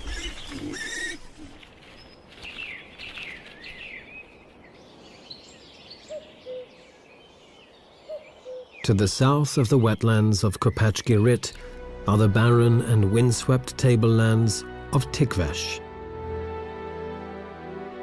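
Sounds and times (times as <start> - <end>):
birds chirping: 0.0 - 11.8
faint outdoor background: 0.0 - 18.0.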